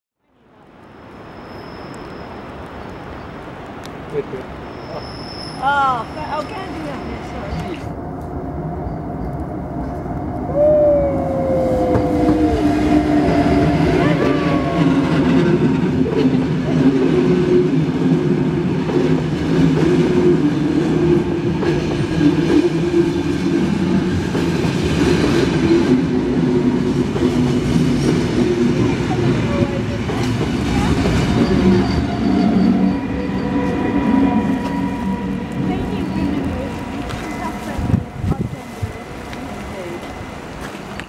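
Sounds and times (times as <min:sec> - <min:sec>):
wheel squeal: 0:01.2 - 0:02.4, 0:04.6 - 0:07.8, 0:30.9 - 0:35.3
train rumbling with wheel clatter: 0:03.6 - 0:41.0.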